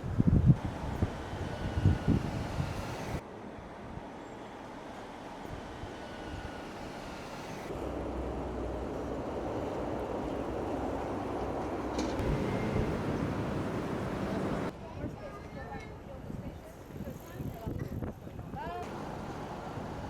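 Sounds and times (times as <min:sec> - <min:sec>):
moving vehicle rumble: 0:05.6 - 0:14.7, 0:18.8 - 0:20.0.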